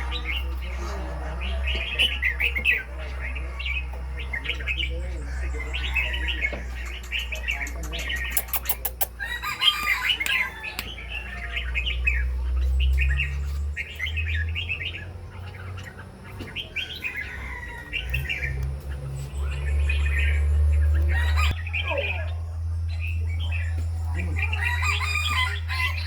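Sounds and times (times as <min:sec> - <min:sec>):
small birds chirping: 0:00.0 - 0:26.0
sharp clicks: 0:07.8 - 0:09.2.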